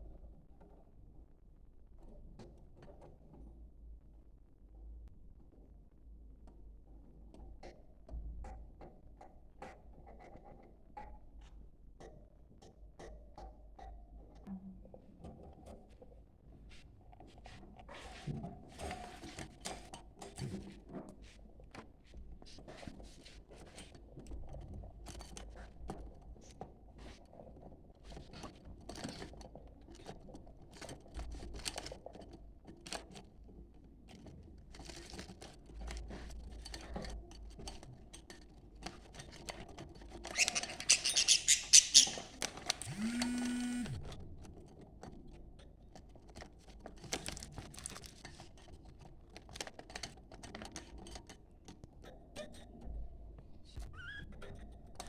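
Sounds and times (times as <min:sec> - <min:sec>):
budgerigar high warbling: 0:40.9 - 0:42.3
budgerigars chattering: 0:40.9 - 0:42.3.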